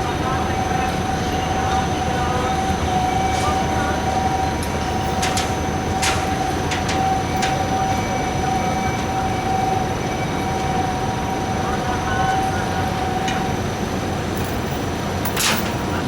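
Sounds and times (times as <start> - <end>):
heavy machinery whining: 0.0 - 16.0
sharp metallic clanks: 14.4 - 16.0.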